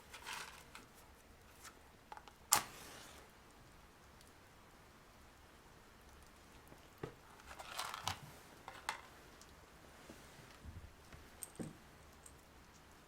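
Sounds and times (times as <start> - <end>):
paper crinkling rustle: 0.0 - 1.8, 7.3 - 9.1.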